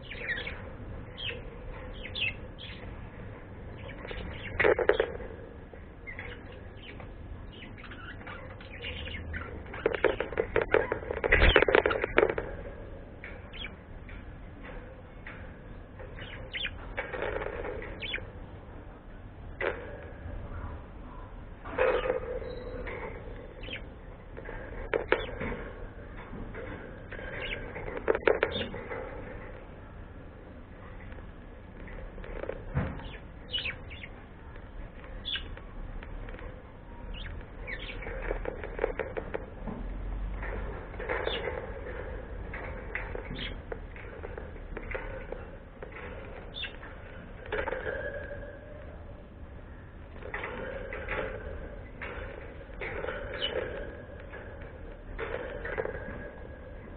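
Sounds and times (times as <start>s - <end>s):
bird chirping: 0.0s - 3.0s, 3.6s - 13.8s, 15.7s - 18.3s, 20.6s - 29.3s, 31.8s - 39.4s, 40.4s - 48.9s, 50.2s - 56.9s.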